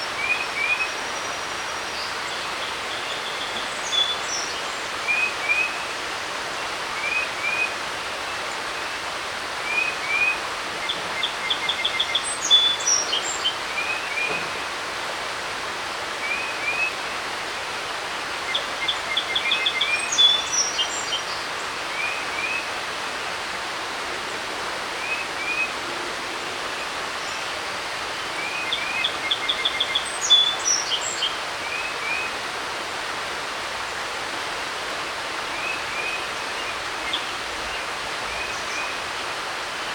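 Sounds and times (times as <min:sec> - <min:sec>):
creek running: 0:00.0 - 0:39.9
bird song with trill: 0:00.2 - 0:05.9, 0:09.7 - 0:14.6, 0:17.8 - 0:22.7, 0:26.7 - 0:32.3.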